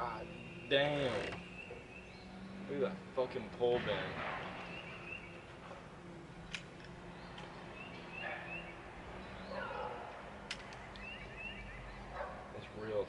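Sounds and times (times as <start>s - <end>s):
bird singing rising chirps: 0.0s - 3.2s, 4.4s - 10.2s, 10.8s - 12.2s
sharp clicks: 6.4s - 7.6s, 10.4s - 11.2s.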